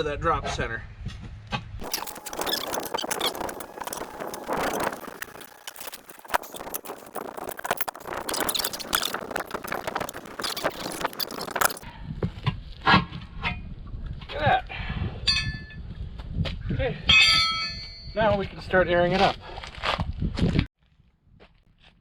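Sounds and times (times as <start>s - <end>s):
tire irons clicking on metal: 1.8s - 11.8s
rubber squeaking and scraping: 1.8s - 11.9s.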